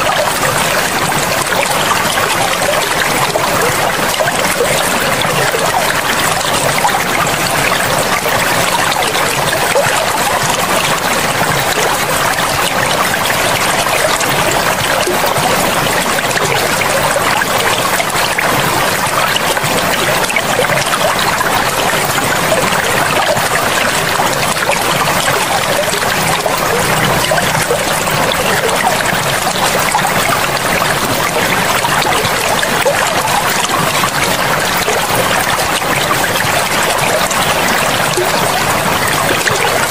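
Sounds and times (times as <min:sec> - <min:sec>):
river water rushing: 0:21.1 - 0:39.9.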